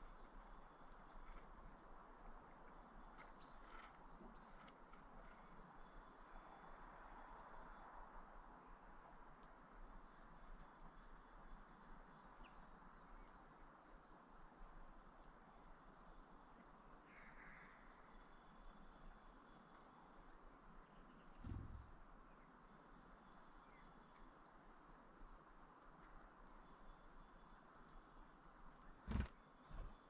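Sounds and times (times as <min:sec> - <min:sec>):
small birds chirping: 0:00.0 - 0:08.0, 0:09.2 - 0:30.0
soft steady hiss: 0:00.0 - 0:30.0
dull low thumps: 0:21.4 - 0:22.0.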